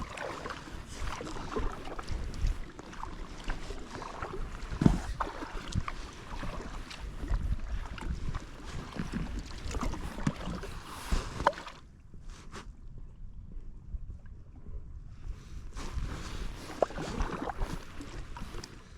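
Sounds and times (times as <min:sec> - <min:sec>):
paddle splashes: 0:00.0 - 0:11.9, 0:15.7 - 0:18.9
water sloshing: 0:00.0 - 0:11.9, 0:15.6 - 0:18.9
wind rumble on microphone: 0:00.0 - 0:18.9.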